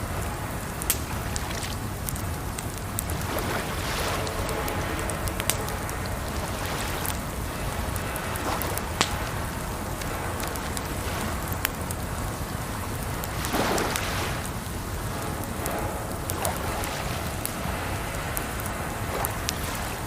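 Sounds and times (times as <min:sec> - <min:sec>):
campfire crackling and popping: 0:00.0 - 0:20.0
rushing water: 0:00.0 - 0:20.0.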